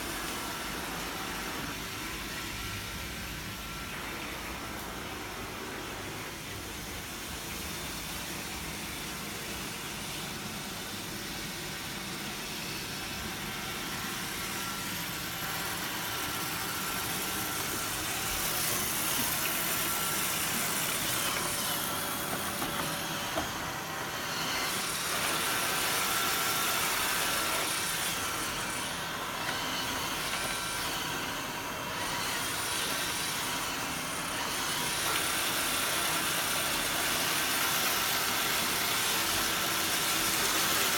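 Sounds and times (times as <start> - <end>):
robot vacuum motor whir: 12.7 - 40.9.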